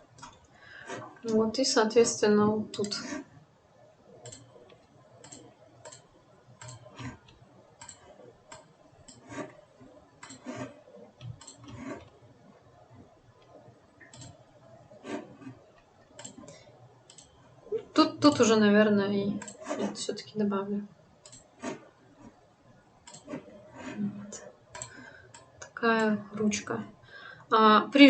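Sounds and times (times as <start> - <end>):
mouse and keyboard clicking: 4.2 - 4.5, 5.2 - 9.5, 10.2 - 12.1, 14.0 - 14.4, 19.4 - 19.9, 21.2 - 21.8, 23.1 - 23.5.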